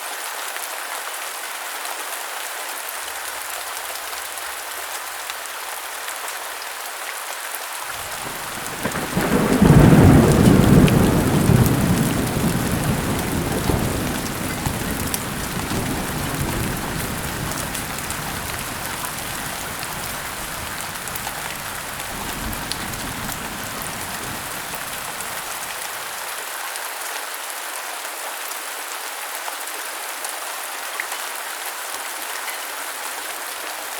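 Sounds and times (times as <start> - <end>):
heavy rain: 0.1 - 33.9
thunder rumbling: 8.0 - 26.0.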